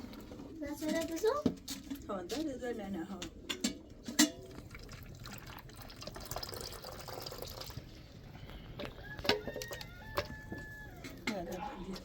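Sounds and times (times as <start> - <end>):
water running and trickling: 4.4 - 8.0.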